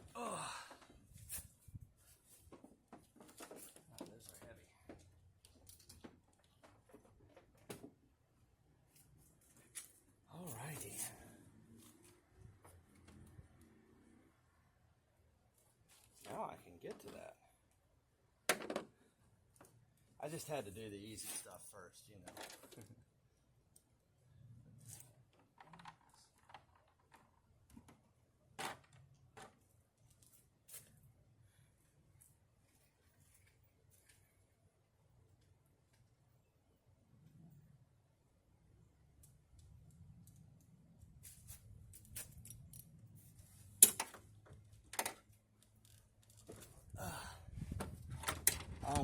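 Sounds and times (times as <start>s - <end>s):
tools clicking and rattling: 43.8s - 46.6s.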